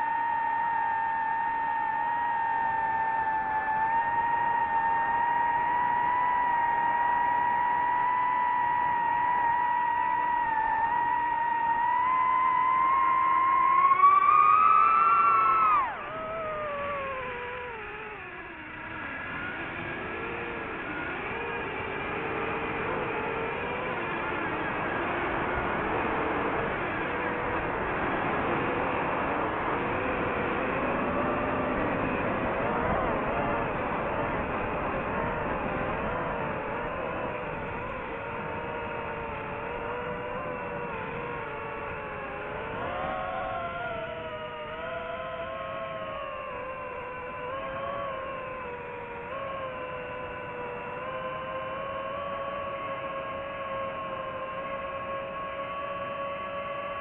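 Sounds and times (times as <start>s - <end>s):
drone electric motors whining: 0.0s - 57.0s.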